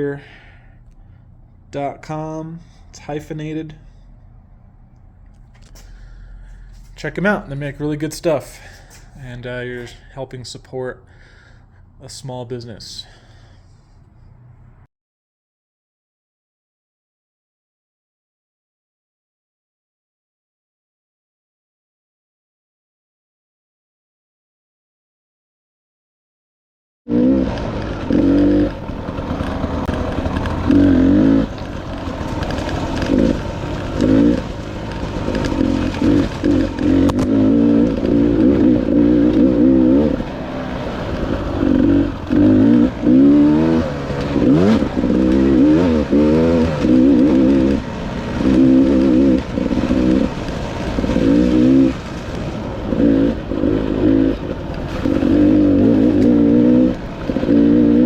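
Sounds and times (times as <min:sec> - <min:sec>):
dirt bike engine revving: 0:05.4 - 0:10.2, 0:27.1 - 0:58.0.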